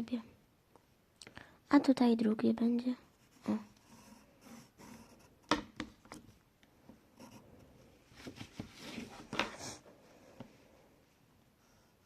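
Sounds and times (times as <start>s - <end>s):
pencil scratching on paper: 3.0s - 5.5s, 7.1s - 7.9s.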